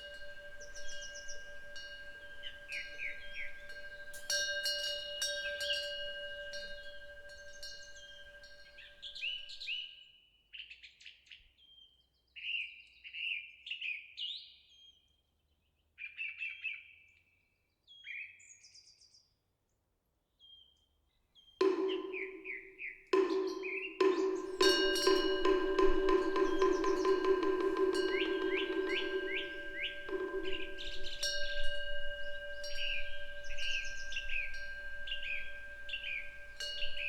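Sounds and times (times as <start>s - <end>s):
bronze wind bell ringing: 0.0s - 9.8s, 21.6s - 37.0s
small birds chirping: 0.0s - 9.8s, 21.4s - 37.0s.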